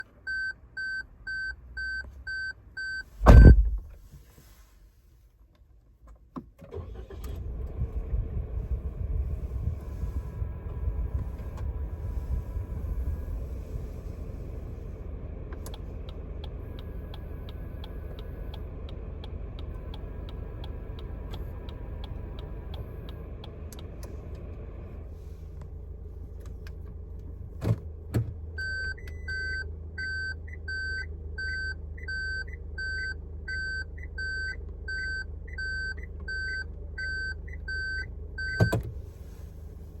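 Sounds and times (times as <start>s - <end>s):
clunks: 3.2s - 4.0s, 26.4s - 28.4s, 38.5s - 39.1s
car engine idling: 6.7s - 40.0s.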